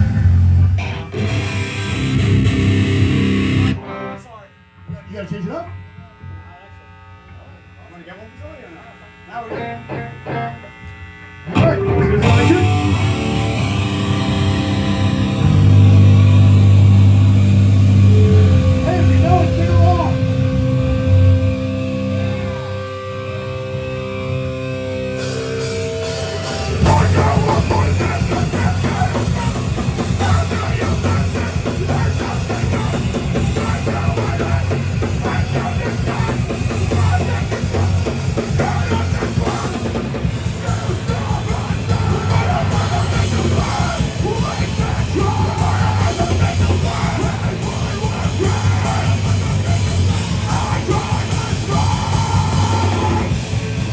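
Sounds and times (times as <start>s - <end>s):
yelled vocals: 0.0s - 3.9s, 11.5s - 53.9s
distorted guitars: 0.0s - 53.9s
fast dense drumming: 11.6s - 22.6s, 26.0s - 53.9s.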